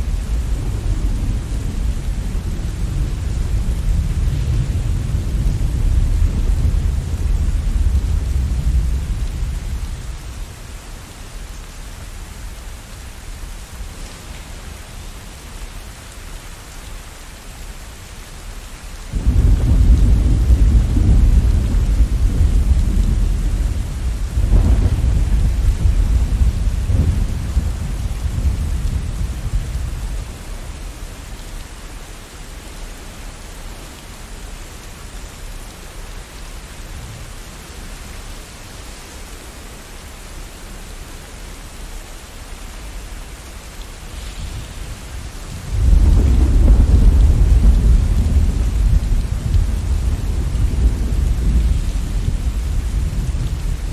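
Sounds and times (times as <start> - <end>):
thunder rumbling: 0.0 - 10.3, 19.1 - 30.9, 44.0 - 53.9
steady rain: 0.0 - 53.9.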